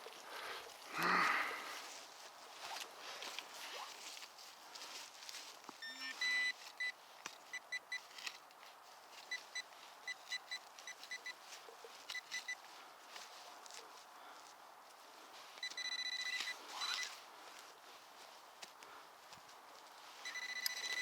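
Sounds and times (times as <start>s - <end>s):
metal detector low tone: 5.8s - 6.9s
metal detector high beeps: 5.8s - 8.0s, 9.3s - 11.4s, 12.1s - 12.6s, 15.6s - 17.2s, 20.2s - 21.0s.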